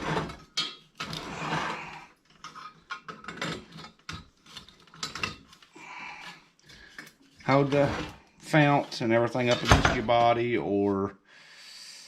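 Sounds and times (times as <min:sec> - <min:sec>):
wrench scraping and knocking on metal: 0:00.0 - 0:05.6, 0:06.8 - 0:10.4.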